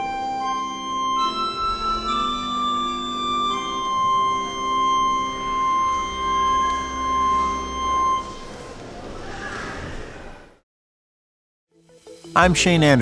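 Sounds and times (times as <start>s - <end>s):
organ chord: 0.0s - 8.5s, 12.3s - 13.0s.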